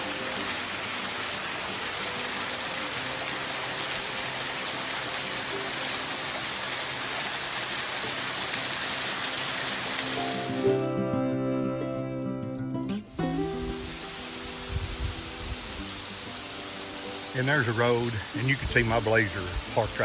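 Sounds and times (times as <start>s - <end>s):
waterfall rushing: 0.0s - 10.8s, 13.4s - 20.0s
faint background music: 8.1s - 20.0s.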